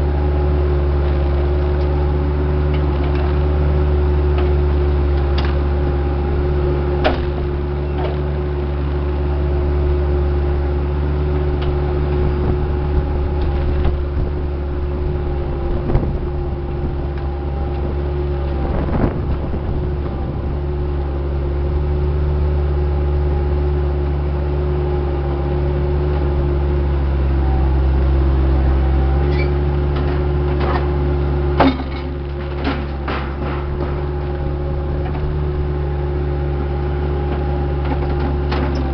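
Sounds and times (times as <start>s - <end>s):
diesel engine running: 0.0s - 38.9s
metal clanks and knocks: 31.6s - 34.4s.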